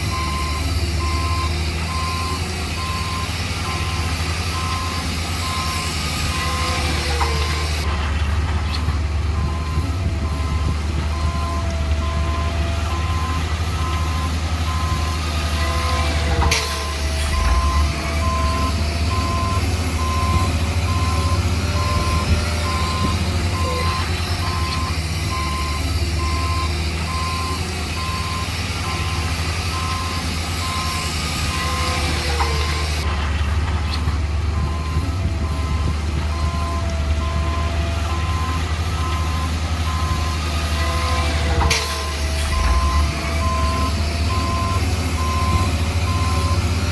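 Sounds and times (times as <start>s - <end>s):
reversing alarm beeping: 0.0s - 7.9s, 9.3s - 33.1s, 34.6s - 46.8s
diesel engine running: 0.0s - 46.9s.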